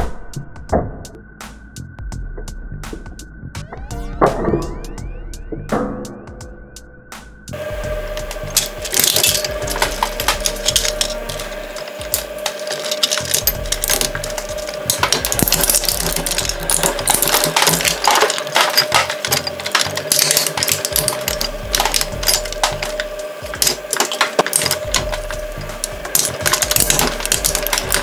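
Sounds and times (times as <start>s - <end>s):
metal and plastic pieces cracking: 7.6s - 28.0s
shredder humming: 7.6s - 28.0s.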